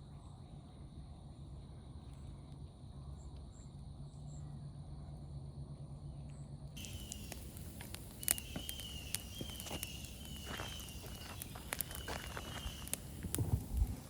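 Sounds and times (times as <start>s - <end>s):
insects singing: 6.8s - 14.0s.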